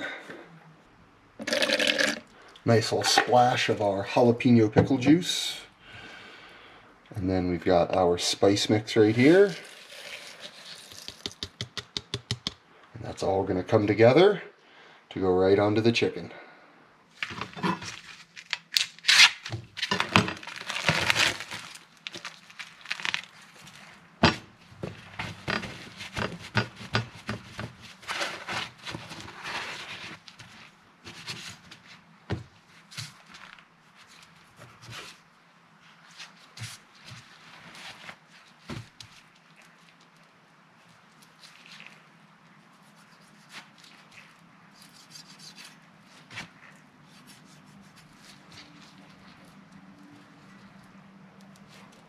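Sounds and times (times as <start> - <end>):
utensils and containers tapping: 10.9 - 12.6
rubbing and scraping handling: 17.1 - 40.2, 40.8 - 52.0
rustling: 17.1 - 52.0.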